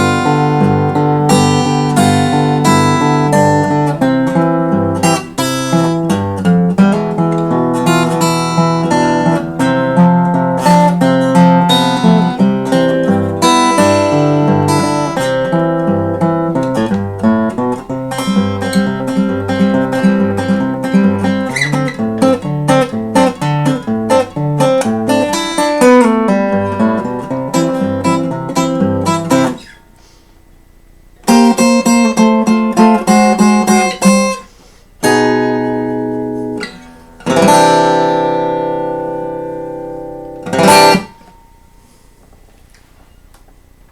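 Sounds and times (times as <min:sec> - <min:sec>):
fingerstyle acoustic guitar: 0:00.0 - 0:43.9.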